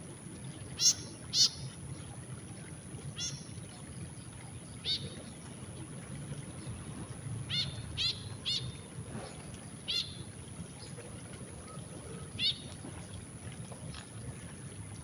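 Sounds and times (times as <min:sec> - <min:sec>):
bird giving sharp calls: 0:00.8 - 0:01.6.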